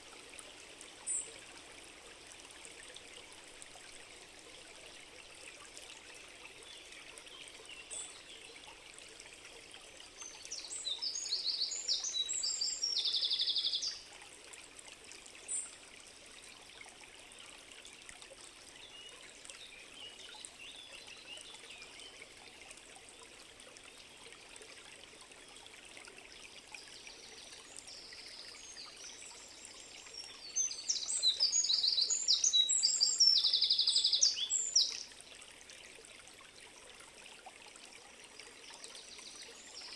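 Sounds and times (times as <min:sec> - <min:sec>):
flowing stream water: 0:00.0 - 0:39.9
songbird singing with trill: 0:10.6 - 0:13.9, 0:30.3 - 0:35.0.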